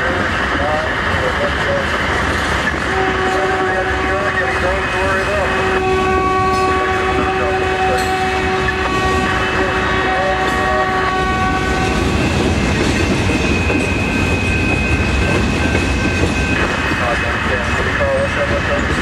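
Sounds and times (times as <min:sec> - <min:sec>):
train wheels rumbling on track: 0:00.0 - 0:19.0
high ringing tone: 0:11.8 - 0:17.1.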